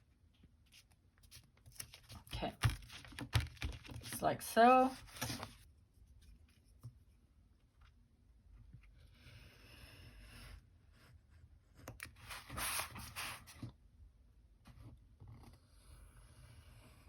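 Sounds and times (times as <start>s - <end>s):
paper rustling: 0.7s - 5.6s.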